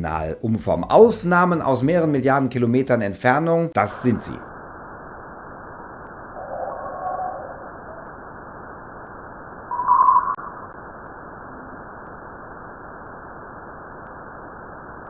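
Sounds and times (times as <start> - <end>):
steady hiss: 0.8 - 5.6
short loud tone: 9.7 - 10.5.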